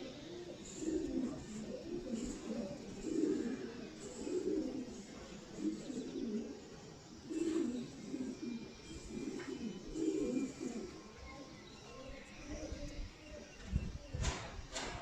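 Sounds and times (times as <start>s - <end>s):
pigeons cooing: 0.0s - 11.6s.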